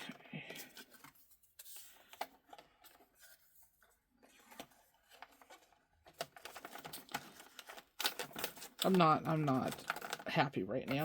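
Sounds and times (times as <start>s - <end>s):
soft plastic rustling: 0.0s - 11.0s
plastic containers clicking: 6.1s - 11.0s.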